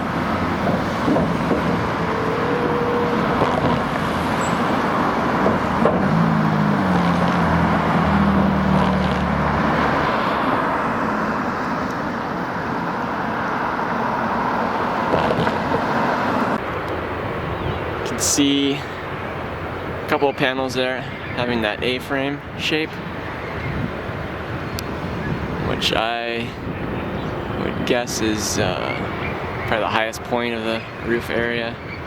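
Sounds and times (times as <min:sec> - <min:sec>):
vehicle engine passing: 0:00.0 - 0:16.6
road traffic noise: 0:00.0 - 0:32.0.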